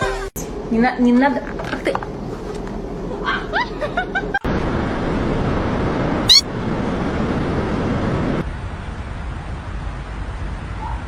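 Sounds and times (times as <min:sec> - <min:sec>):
steady rushing noise: 0:04.4 - 0:10.7
cat mewing: 0:06.3 - 0:06.5.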